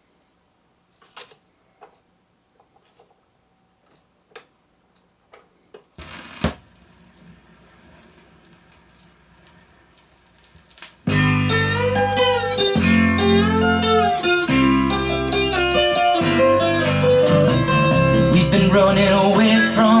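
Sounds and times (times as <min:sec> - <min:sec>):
vinyl stylus crackle and clicks: 0:05.8 - 0:11.5
country song with plucked guitar: 0:11.1 - 0:20.0.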